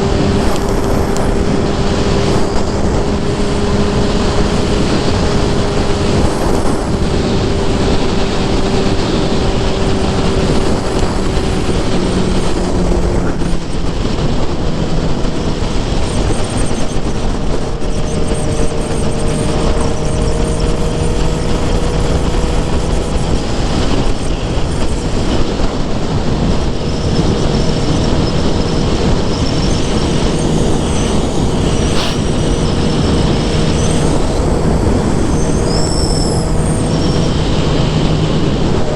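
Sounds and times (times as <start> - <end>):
motorcycle engine and exhaust: 0.0 - 38.9
heavy rush of noise: 23.8 - 38.9.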